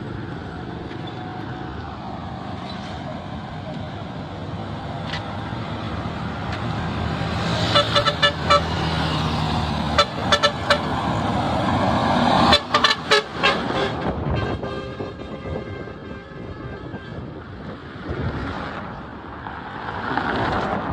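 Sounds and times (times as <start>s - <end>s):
vehicle engines passing: 0.0s - 20.9s
car horn toots: 7.6s - 8.9s, 10.0s - 10.9s, 12.4s - 17.2s.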